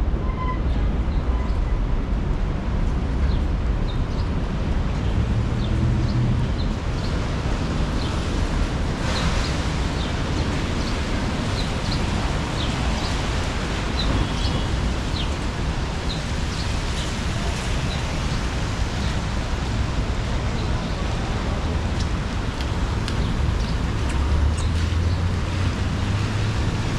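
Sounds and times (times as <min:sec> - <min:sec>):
traffic rumble: 0:00.0 - 0:26.9.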